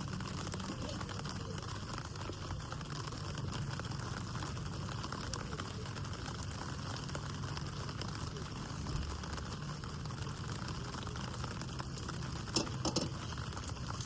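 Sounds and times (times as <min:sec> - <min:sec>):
light rain pattering: 0:00.0 - 0:14.0.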